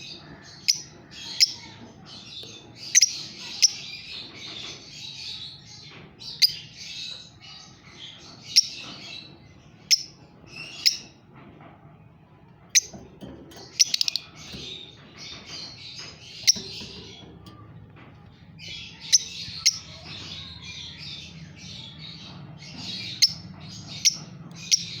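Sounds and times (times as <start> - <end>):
lovebirds chattering: 0.0 - 11.6, 12.4 - 25.0.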